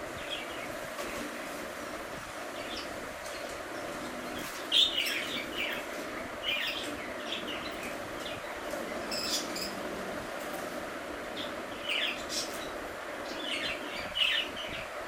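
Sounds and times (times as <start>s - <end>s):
background hum: 0.0s - 15.0s
budgerigars chirping: 4.3s - 9.9s, 11.4s - 14.9s.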